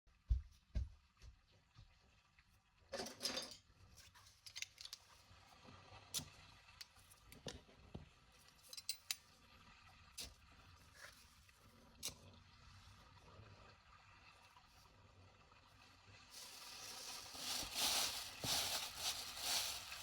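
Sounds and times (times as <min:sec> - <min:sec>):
rustling scrape: 0:16.3 - 0:20.0.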